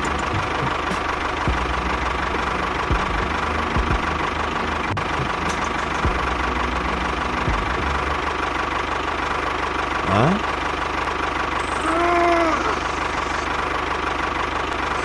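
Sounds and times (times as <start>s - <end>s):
short low thumps: 0.0s - 1.8s, 2.9s - 4.2s, 7.5s - 7.8s
tractor engine running: 0.0s - 15.0s.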